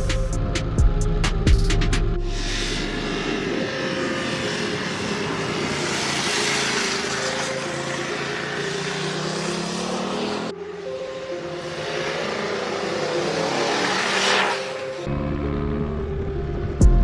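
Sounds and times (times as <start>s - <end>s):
wind and road noise: 0.0s - 17.0s
motorcycle engine running: 15.1s - 17.0s.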